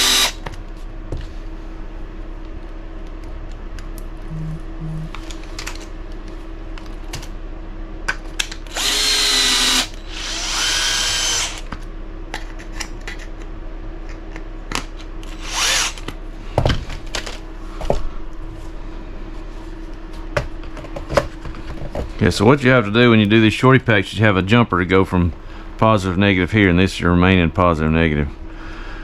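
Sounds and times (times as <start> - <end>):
cordless power driver running: 0.0 - 0.5, 8.5 - 11.8, 15.2 - 16.2.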